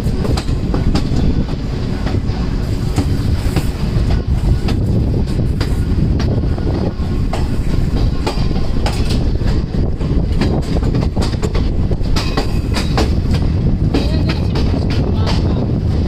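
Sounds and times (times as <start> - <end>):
wheels clicking over rail joints: 0.0 - 15.8
train rumbling: 0.0 - 16.0.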